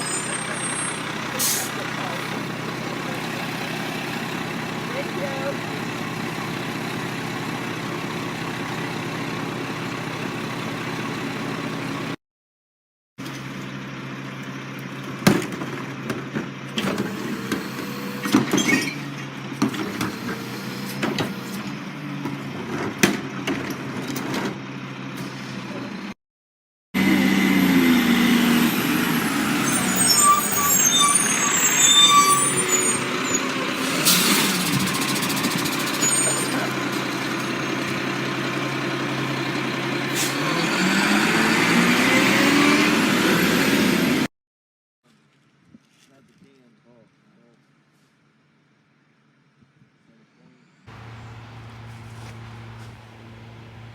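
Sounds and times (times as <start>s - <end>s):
garbage truck engine running: 0.0s - 12.2s, 27.0s - 42.0s, 50.9s - 53.9s
high squeals and chirps: 29.6s - 33.6s.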